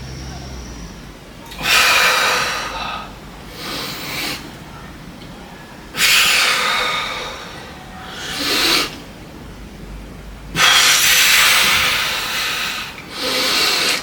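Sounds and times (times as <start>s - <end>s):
person breathing hard: 1.6s - 4.6s, 5.9s - 9.0s, 10.6s - 14.0s.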